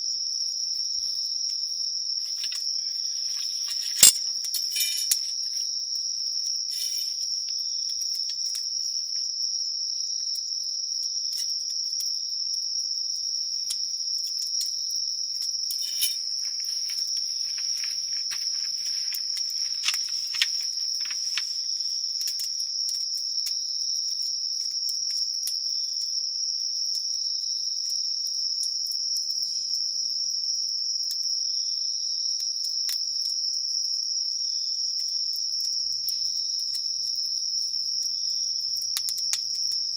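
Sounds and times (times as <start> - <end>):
insects chirping: 0.0 - 39.9
campfire popping: 15.8 - 22.4.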